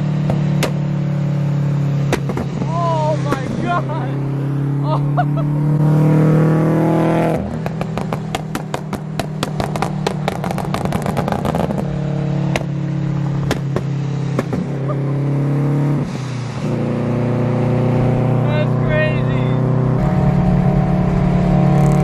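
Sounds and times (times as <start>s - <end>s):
exhaust pops and backfires: 0.0s - 3.8s, 7.0s - 15.0s, 20.0s - 22.0s
car engine running: 0.0s - 22.0s.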